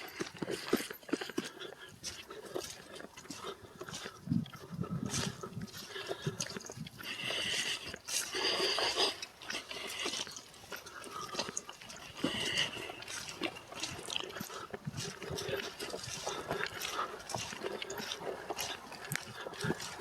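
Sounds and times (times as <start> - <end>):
footsteps crunching on dry leaves: 8.3 - 20.0.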